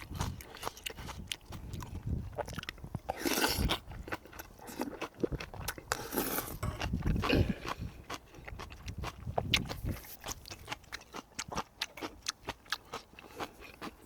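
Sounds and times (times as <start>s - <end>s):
man chewing: 0.0s - 14.0s.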